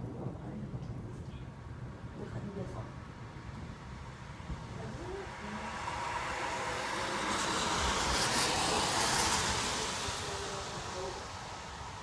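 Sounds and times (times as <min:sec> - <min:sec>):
tyres hissing on wet road: 0:03.2 - 0:12.0.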